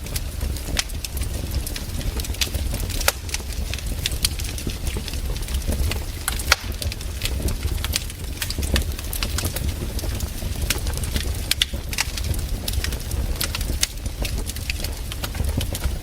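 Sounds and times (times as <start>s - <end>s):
campfire crackling: 0.0s - 16.0s
loud wood pops: 2.9s - 3.4s, 6.3s - 7.0s.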